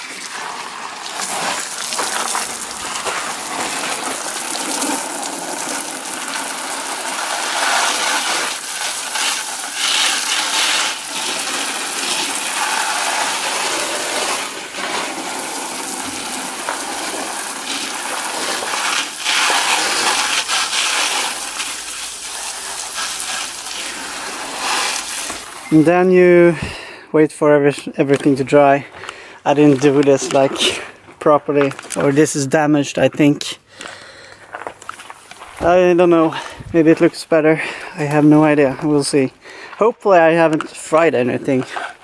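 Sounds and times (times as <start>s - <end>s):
water spraying from garden hose: 0.0s - 26.0s.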